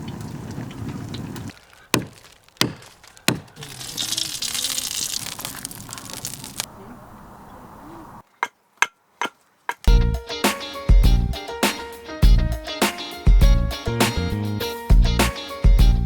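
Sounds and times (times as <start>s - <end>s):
hissing crackle: 0.0s - 6.7s
sharp knocks: 1.9s - 3.5s.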